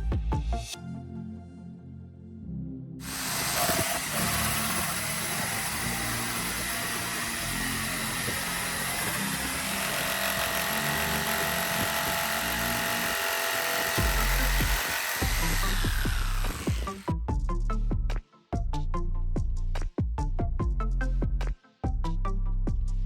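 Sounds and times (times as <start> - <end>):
power tool motor whining: 3.0 - 17.1.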